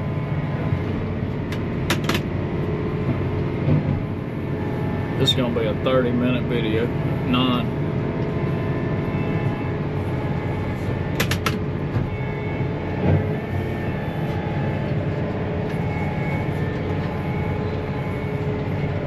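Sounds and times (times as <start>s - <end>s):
tractor diesel engine running: 0.0s - 19.0s
sharp clicks: 11.2s - 11.6s.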